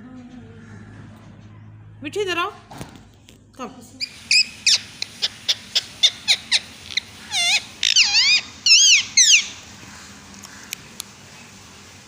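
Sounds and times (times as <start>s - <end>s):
parrot chirping and screeching: 4.0s - 10.8s.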